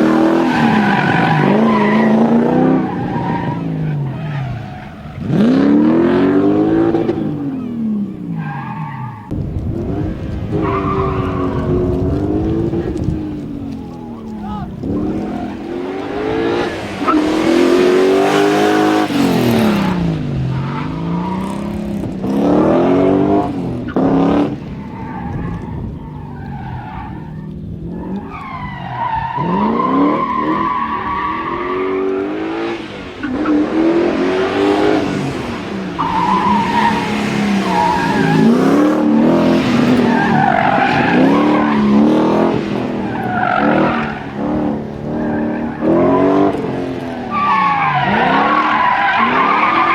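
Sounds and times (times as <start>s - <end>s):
car engines revving: 0.0s - 49.9s
tyres screeching: 35.9s - 49.9s.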